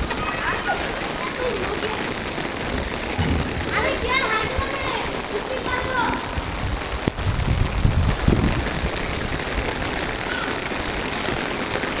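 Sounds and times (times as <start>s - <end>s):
rain on a hard surface: 0.0s - 12.0s
dull low thumps: 3.1s - 4.1s.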